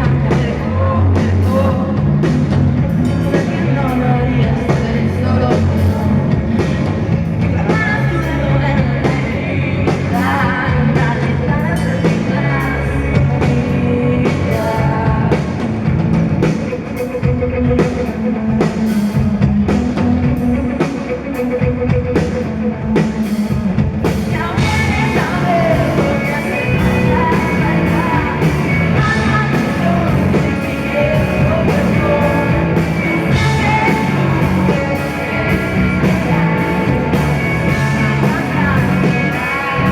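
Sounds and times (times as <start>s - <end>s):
woman singing: 0.0s - 2.0s, 3.0s - 6.8s, 7.4s - 15.6s, 24.0s - 39.9s
drums: 0.0s - 39.9s
rock band playing live: 0.0s - 39.9s.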